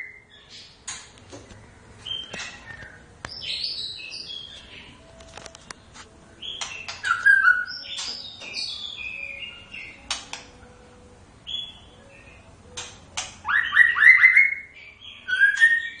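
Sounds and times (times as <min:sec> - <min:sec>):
songbird whistled phrases: 0:06.6 - 0:09.7, 0:13.4 - 0:16.0
bird clicking notes: 0:10.0 - 0:10.6.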